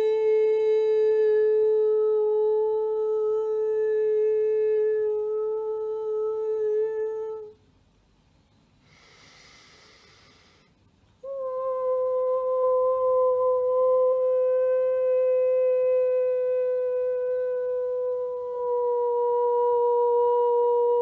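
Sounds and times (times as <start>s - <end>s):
woman chanting a long note: 0.0s - 7.6s, 11.2s - 21.0s
woman breathing: 8.8s - 10.9s.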